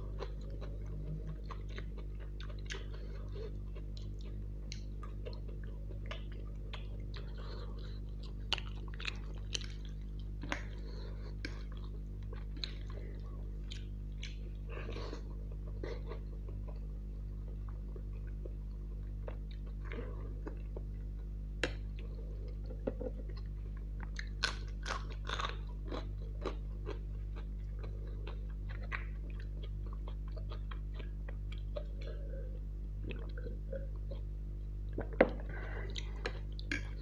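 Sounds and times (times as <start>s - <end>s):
chewing noodles: 0.0s - 34.3s
low hum: 0.0s - 37.0s
crunching bites of chilli: 23.9s - 32.2s.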